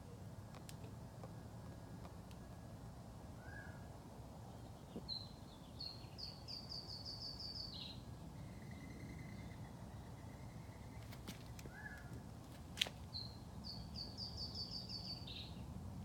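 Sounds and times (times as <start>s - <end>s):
low background noise: 0.0s - 16.0s
bird song: 3.4s - 12.2s, 13.0s - 15.7s.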